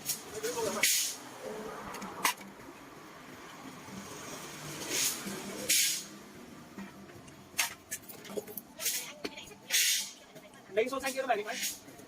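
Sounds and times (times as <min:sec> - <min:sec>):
low workshop background: 0:00.0 - 0:12.0
hissing spray: 0:04.8 - 0:06.2.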